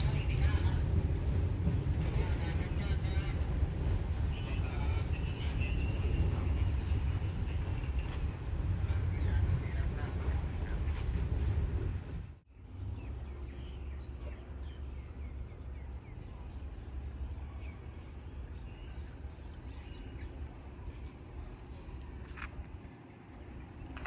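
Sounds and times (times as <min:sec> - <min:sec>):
low steady rumble: 0:00.0 - 0:24.0
high insect drone: 0:12.5 - 0:24.0
faint bird chirps: 0:12.8 - 0:21.1.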